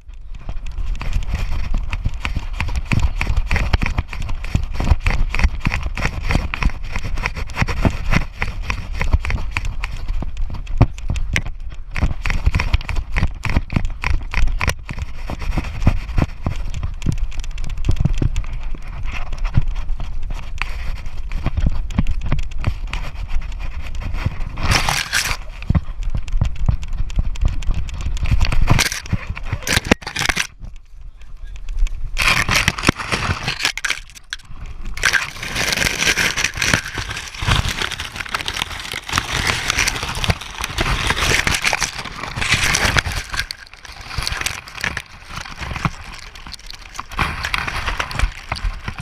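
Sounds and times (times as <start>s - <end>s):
camera knocking and rubbing: 0.5s - 17.2s, 17.8s - 30.8s, 31.8s - 49.0s
rustling burst: 32.2s - 49.0s.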